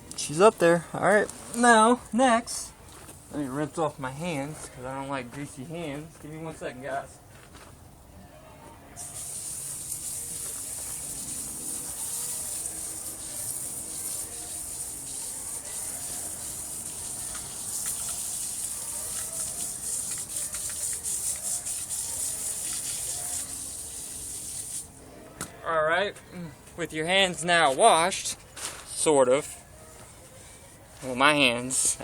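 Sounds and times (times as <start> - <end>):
water splashing over hands: 9.8 - 24.8.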